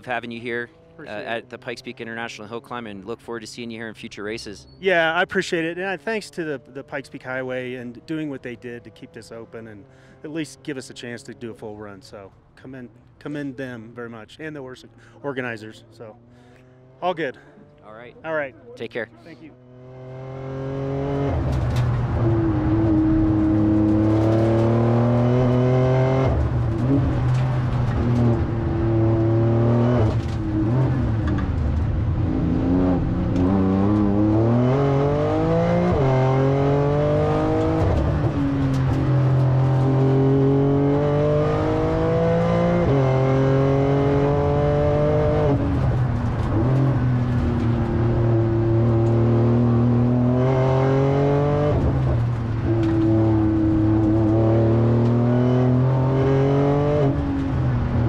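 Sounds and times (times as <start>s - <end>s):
car engine accelerating: 0.0s - 3.6s, 19.4s - 58.0s.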